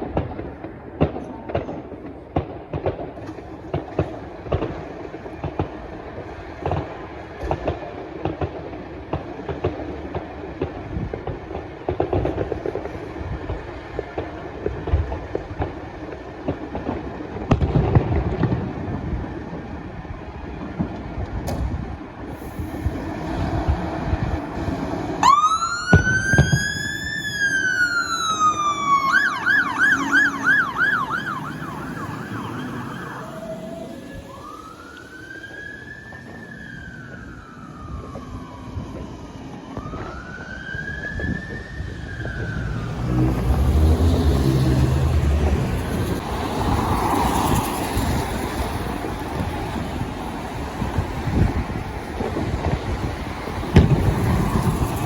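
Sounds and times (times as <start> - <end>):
heavy vehicle engine rumble: 0.0 - 55.0
traffic noise: 0.0 - 55.0
two-tone electronic siren: 23.4 - 46.2.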